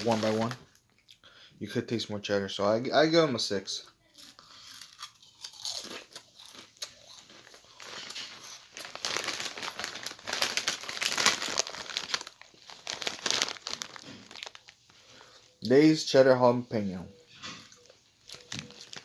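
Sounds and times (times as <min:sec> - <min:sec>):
chip bag crinkling: 0:00.0 - 0:00.8, 0:04.2 - 0:15.7, 0:17.6 - 0:19.0.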